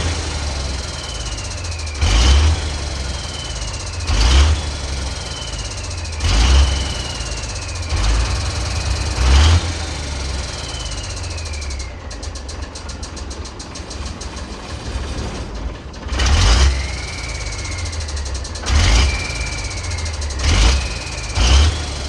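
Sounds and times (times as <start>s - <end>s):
diesel truck engine revving: 0.0s - 22.0s
turbo whistle: 10.1s - 12.1s
fast even ticking: 10.4s - 14.6s.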